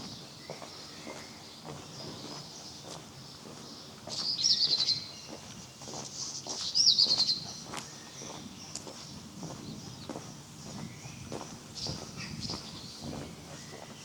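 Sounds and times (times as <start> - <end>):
footsteps on pavement: 0.0 - 14.0
songbird trilling: 4.1 - 5.4, 6.4 - 8.8.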